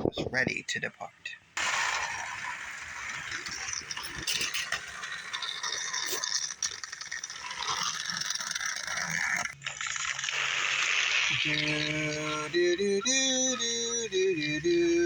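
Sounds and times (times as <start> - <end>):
toy train clattering on track: 1.6 - 9.8.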